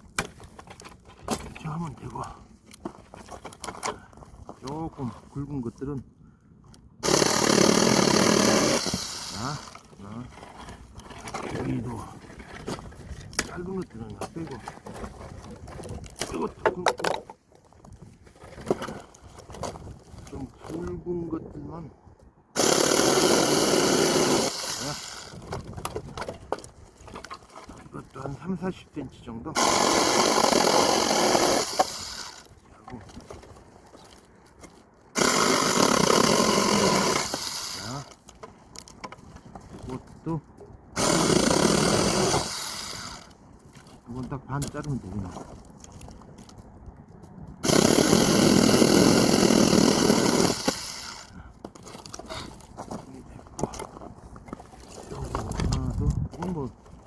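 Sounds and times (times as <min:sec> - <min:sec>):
electric chainsaw cutting branch: 0:07.0 - 0:09.9, 0:22.6 - 0:25.4, 0:29.6 - 0:32.5, 0:35.2 - 0:38.2, 0:41.0 - 0:43.3, 0:47.6 - 0:51.3.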